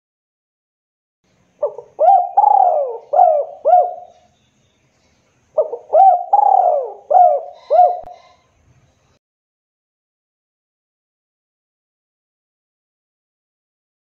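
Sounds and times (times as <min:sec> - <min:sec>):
dove cooing: 0:01.6 - 0:04.3, 0:05.6 - 0:08.4.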